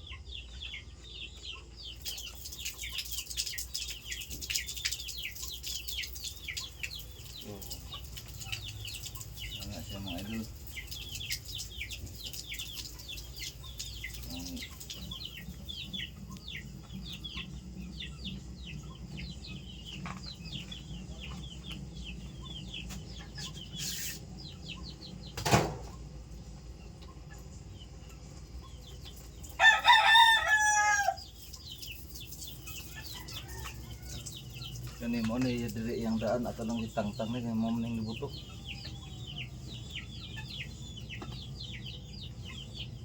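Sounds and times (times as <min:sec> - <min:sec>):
rapid high chirping: 0:22.4 - 0:24.9
rooster crowing: 0:29.6 - 0:31.3.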